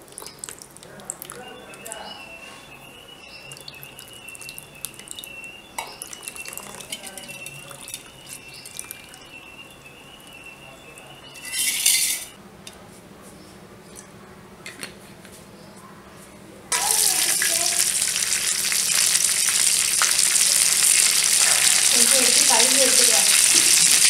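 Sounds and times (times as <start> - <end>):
steel utensils clinking and scraping: 5.8 - 8.9, 11.2 - 12.4.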